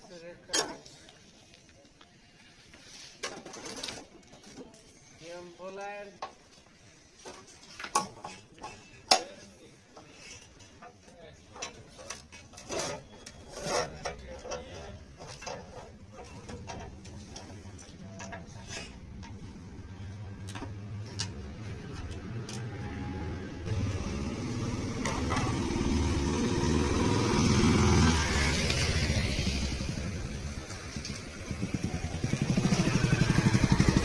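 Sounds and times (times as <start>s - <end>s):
vehicle engine running: 23.7s - 34.0s.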